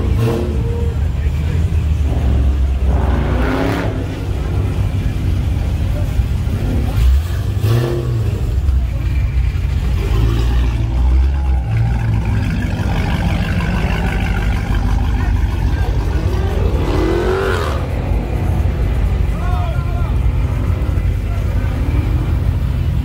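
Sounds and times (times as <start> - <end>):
car engines running loudly: 0.0 - 23.0
engine revving up: 2.0 - 4.8, 6.5 - 8.7, 10.0 - 19.1.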